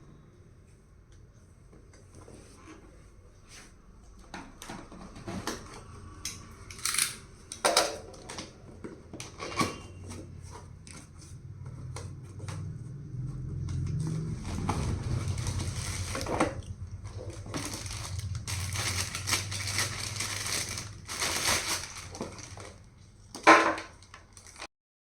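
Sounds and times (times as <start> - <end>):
cardboard packaging rustling: 10.0 - 24.7.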